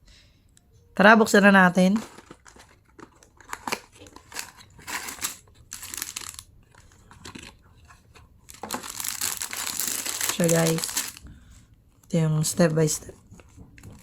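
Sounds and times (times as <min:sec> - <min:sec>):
packaging crinkling and tearing: 0:02.0 - 0:07.6, 0:08.4 - 0:11.3.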